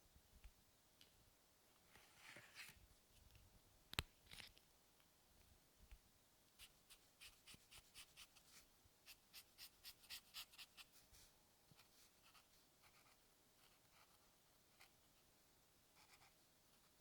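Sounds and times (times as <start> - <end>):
pencil strokes scratching on paper: 6.6 - 15.0, 16.0 - 17.0.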